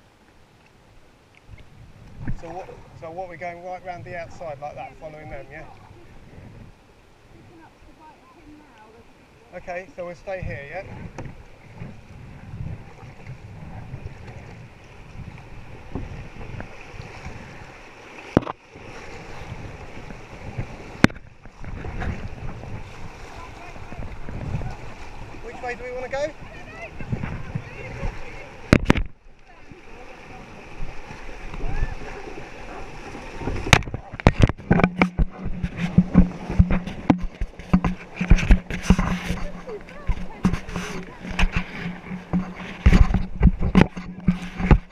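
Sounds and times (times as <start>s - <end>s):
rushing river water: 0.0s - 44.9s
wind buffeting microphone: 1.5s - 8.0s, 10.0s - 44.9s
paddles knocking on canoe hull: 10.2s - 17.7s, 18.3s - 29.2s, 32.4s - 44.9s.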